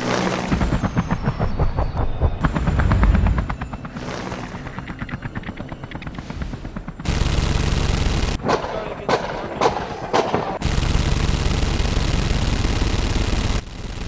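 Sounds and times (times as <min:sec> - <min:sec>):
machine-gun fire: 0:00.0 - 0:01.2, 0:03.9 - 0:04.9, 0:07.0 - 0:09.4, 0:10.6 - 0:14.0
sharp shots or impacts: 0:00.0 - 0:01.2.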